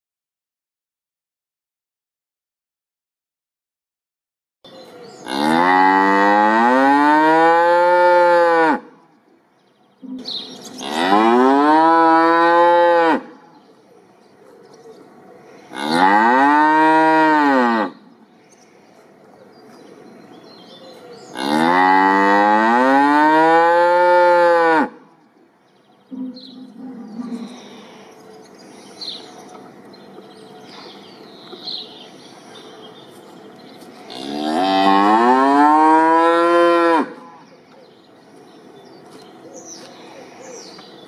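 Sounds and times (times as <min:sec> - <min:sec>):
cow mooing: 0:05.2 - 0:08.9, 0:10.8 - 0:13.4, 0:15.7 - 0:18.0, 0:21.3 - 0:25.0, 0:34.1 - 0:37.4.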